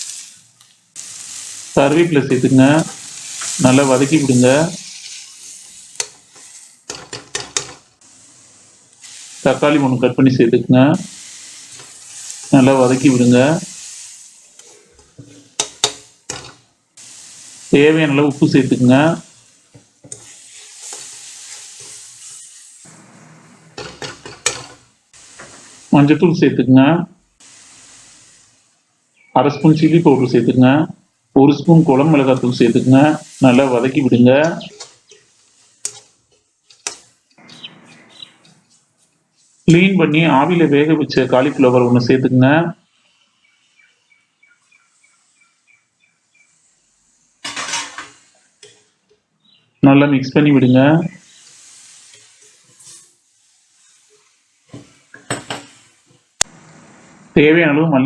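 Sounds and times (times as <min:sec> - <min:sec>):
food sizzling in hot oil: 0:00.0 - 0:57.4
spatula scraping a pan: 0:01.0 - 0:07.9, 0:11.1 - 0:17.2, 0:18.4 - 0:25.9, 0:32.2 - 0:39.8, 0:47.4 - 0:49.0, 0:51.2 - 0:56.2
bird chirping faintly: 0:37.4 - 0:38.5.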